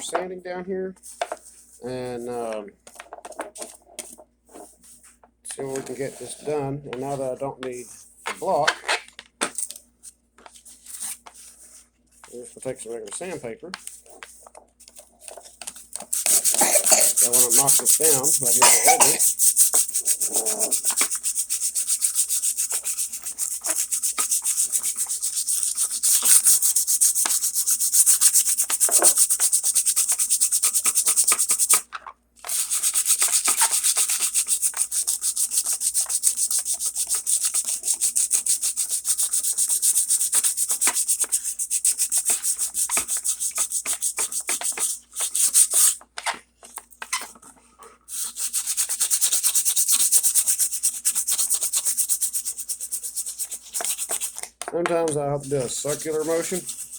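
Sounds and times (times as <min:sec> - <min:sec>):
sandpaper rubbing back and forth: 0:05.6 - 0:08.6, 0:15.9 - 0:31.8, 0:32.4 - 0:46.0, 0:48.1 - 0:54.4, 0:55.0 - 0:56.9.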